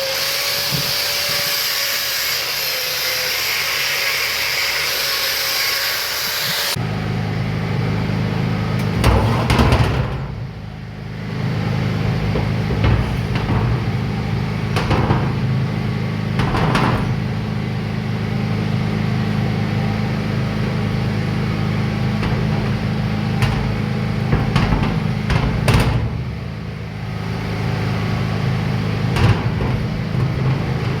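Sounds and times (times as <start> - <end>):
loud hiss: 0.0 - 6.8
machine humming: 1.2 - 31.0
knocks and clatters: 8.8 - 10.6, 11.9 - 17.7, 22.0 - 26.7, 28.2 - 31.0.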